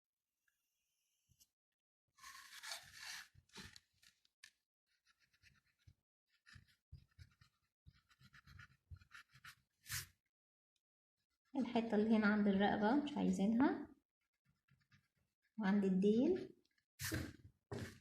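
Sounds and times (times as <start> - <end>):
eraser rubbing on paper: 5.0 - 10.2.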